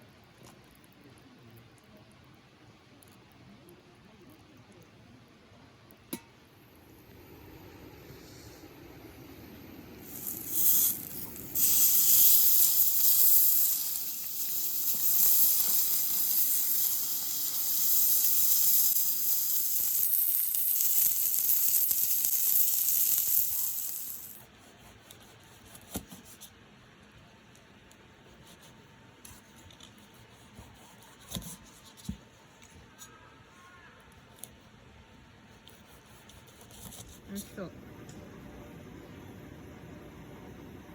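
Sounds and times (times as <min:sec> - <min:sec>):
food sizzling in hot oil: 0:10.0 - 0:24.4
oil spitting: 0:10.0 - 0:24.4.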